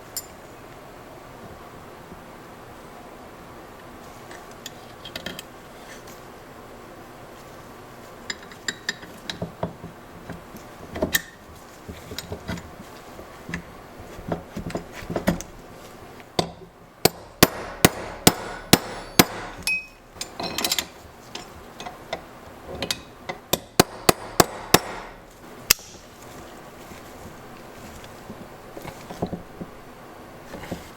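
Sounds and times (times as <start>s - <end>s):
hammer striking: 16.4s - 20.5s, 23.6s - 25.9s.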